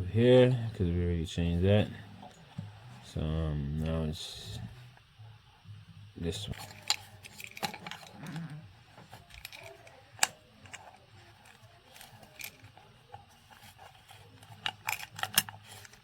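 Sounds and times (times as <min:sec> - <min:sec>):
small parts clicking and knocking: 0:06.4 - 0:16.0.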